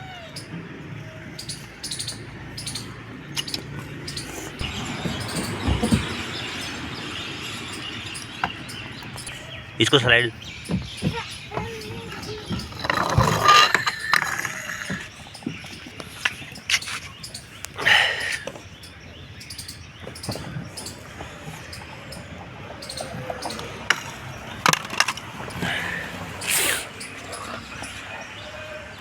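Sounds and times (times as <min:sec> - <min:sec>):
toy wheels rolling down slide: 0:10.8 - 0:17.0, 0:22.8 - 0:27.6.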